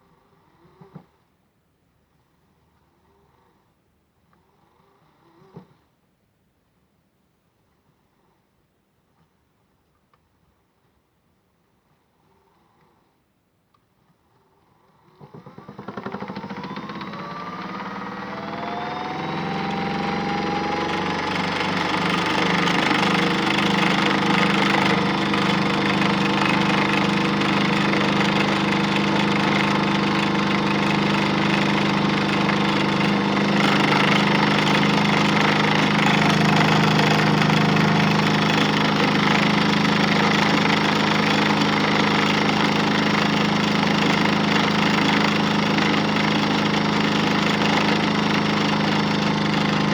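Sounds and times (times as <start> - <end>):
toy washing machine motor whining: 15.6 - 49.9.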